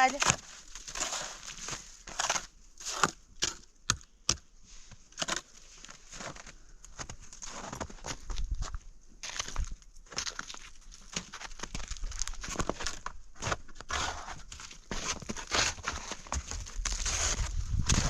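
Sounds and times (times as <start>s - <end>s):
footsteps crunching in snow: 4.8s - 18.0s.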